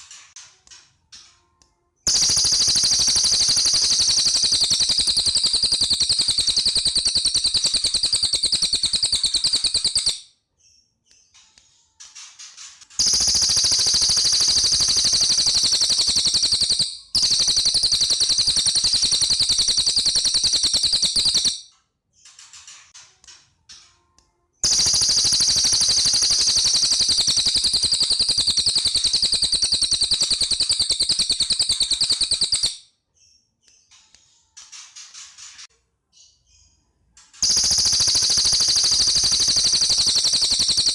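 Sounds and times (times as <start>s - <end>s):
songbird rapid rattling trills: 2.1s - 10.2s, 13.0s - 21.6s, 24.6s - 32.7s, 37.4s - 40.9s.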